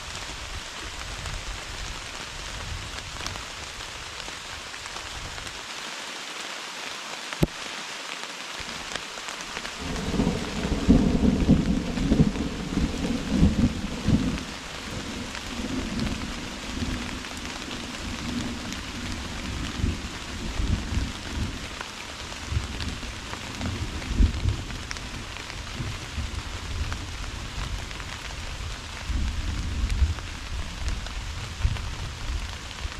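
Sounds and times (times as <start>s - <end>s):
heavy rain: 0.0s - 32.9s
thunder rumbling: 9.8s - 21.8s, 22.4s - 27.9s.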